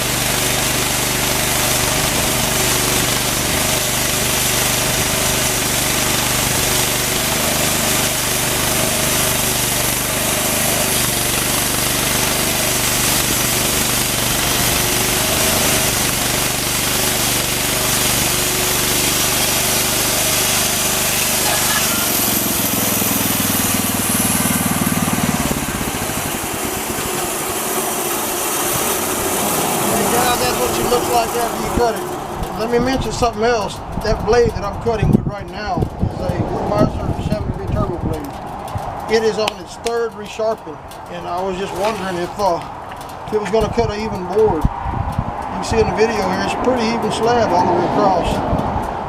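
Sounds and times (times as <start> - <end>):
engine drone: 0.0 - 49.0
band saw blade hissing in wood: 6.8 - 25.2.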